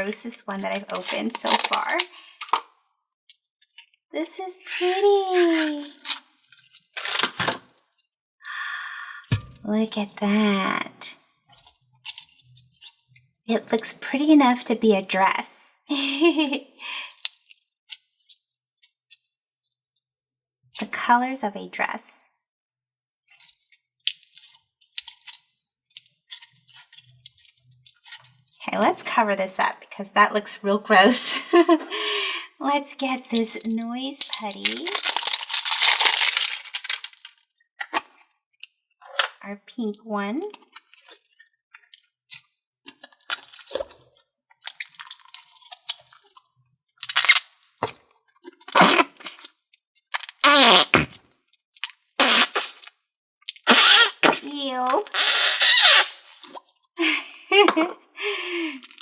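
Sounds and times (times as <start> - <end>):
putty squishing and crackling: 0.6 - 2.1, 33.2 - 38.1.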